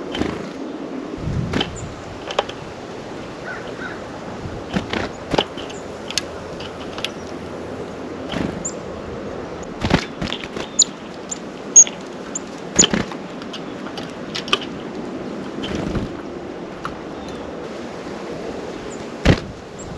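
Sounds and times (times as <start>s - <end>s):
steady outdoor hiss: 0.0s - 19.9s
birds pecking and tapping: 4.6s - 7.5s, 9.6s - 15.0s
high bird chip notes: 5.1s - 12.9s.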